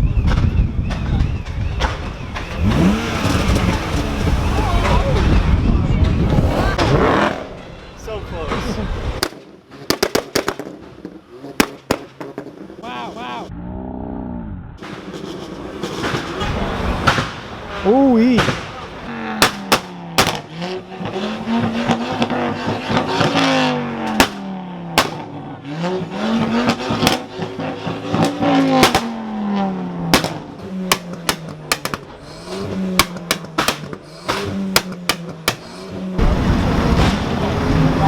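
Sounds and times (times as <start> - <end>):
car engine revving: 1.8 - 7.9, 8.5 - 38.0
loud rushing noise: 2.6 - 7.7
sharp cracks and bangs: 9.2 - 12.6, 14.8 - 17.7, 18.3 - 20.6, 21.6 - 25.4, 26.4 - 29.3, 30.0 - 37.6.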